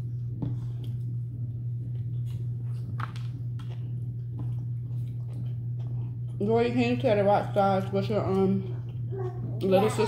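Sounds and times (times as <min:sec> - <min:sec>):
low hum: 0:00.0 - 0:10.0
wet chewing and mouth smacks: 0:00.2 - 0:06.4.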